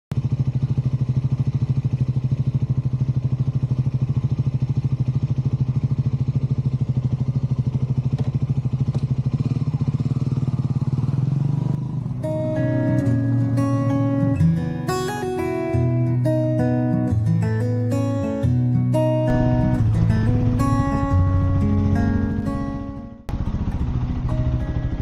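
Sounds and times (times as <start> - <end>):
motorcycle engine running: 0.1 - 14.2, 19.3 - 25.0
acoustic guitar music: 12.0 - 25.0.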